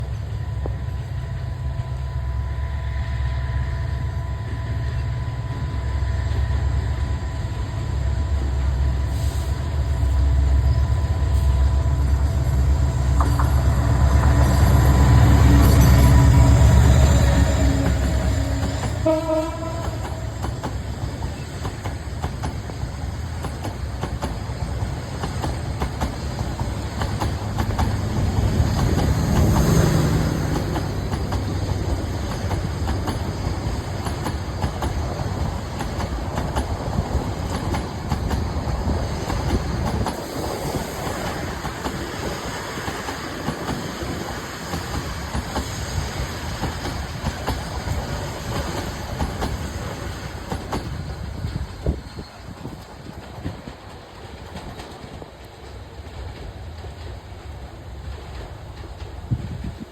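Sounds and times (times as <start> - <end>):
train rumble: 0.0 - 59.9
train wheels clattering over rail joints: 12.6 - 59.9
short horn-like tone: 15.5 - 20.2.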